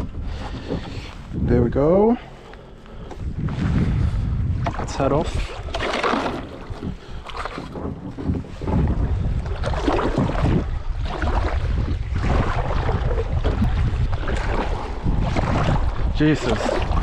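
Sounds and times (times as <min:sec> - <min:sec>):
wind rumbling on microphone: 0:00.0 - 0:17.0
paddle strokes splashing water: 0:04.6 - 0:17.0.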